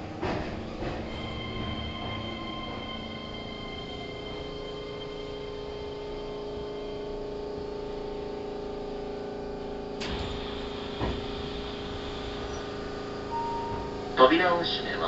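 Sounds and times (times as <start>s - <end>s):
train equipment hum: 0.0s - 15.0s
hiss: 10.0s - 13.4s.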